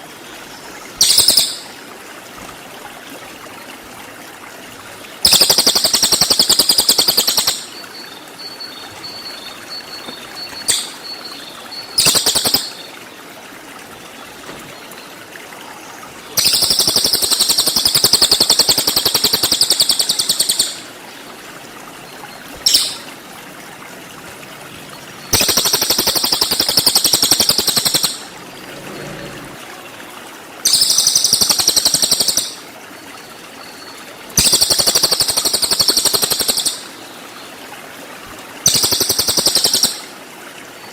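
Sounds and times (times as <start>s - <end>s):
songbird rapid rattling song: 0.3s - 1.8s, 5.1s - 13.1s, 16.4s - 23.3s, 24.8s - 29.5s, 30.6s - 37.5s, 38.6s - 40.1s.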